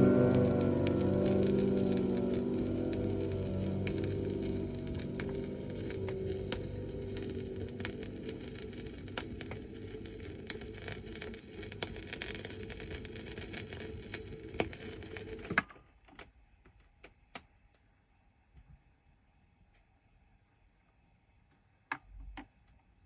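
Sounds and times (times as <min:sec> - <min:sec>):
vinyl record surface noise: 0:00.0 - 0:15.9.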